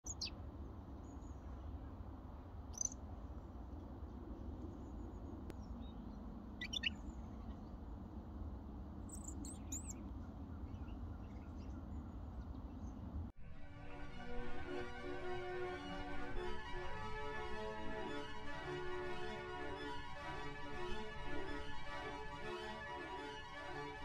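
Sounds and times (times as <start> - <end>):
high bird chirps: 0.0 - 0.3, 6.6 - 7.0.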